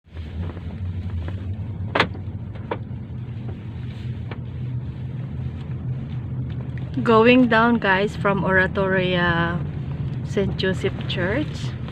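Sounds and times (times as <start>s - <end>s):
car road rumble: 0.0s - 11.9s.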